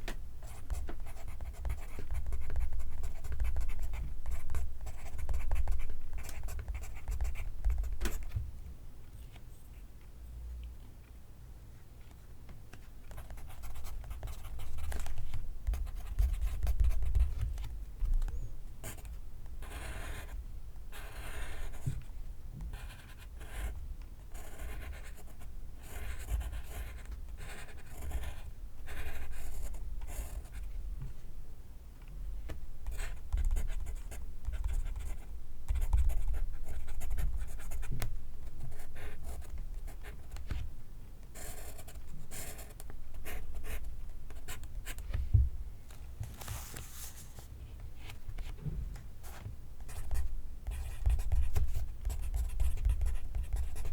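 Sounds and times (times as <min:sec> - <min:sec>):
pencil writing on paper: 0:19.6 - 0:20.3, 0:25.9 - 0:29.5.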